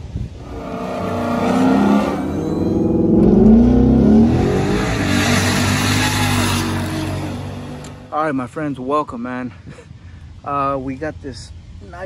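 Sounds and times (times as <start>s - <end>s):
car engine revving: 0.4s - 8.1s.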